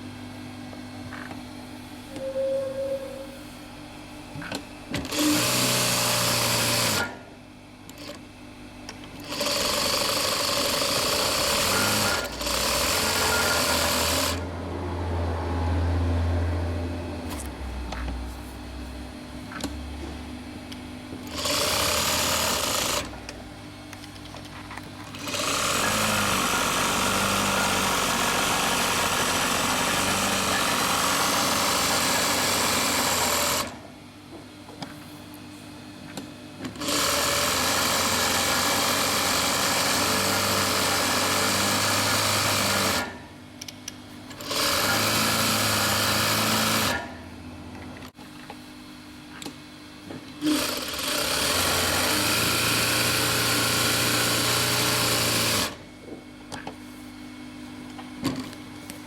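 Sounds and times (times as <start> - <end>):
sewing machine stitching: 5.0 - 7.2, 9.2 - 14.5, 21.3 - 23.2, 25.0 - 33.8, 36.8 - 43.2, 44.3 - 47.2, 50.4 - 55.8.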